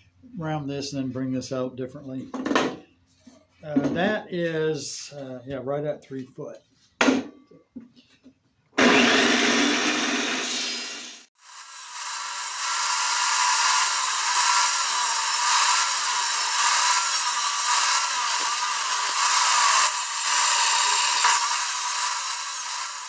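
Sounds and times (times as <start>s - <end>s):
power tool shaping wood: 8.8s - 23.0s.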